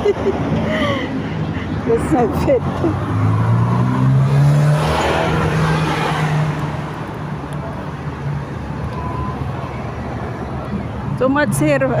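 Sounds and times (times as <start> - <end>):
traffic noise: 0.0 - 12.0
car passing by: 1.4 - 7.8.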